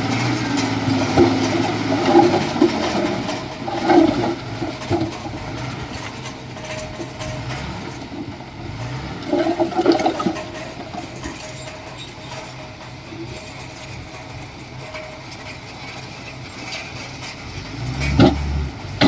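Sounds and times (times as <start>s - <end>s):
heavy earthmoving machinery running: 0.0s - 19.0s.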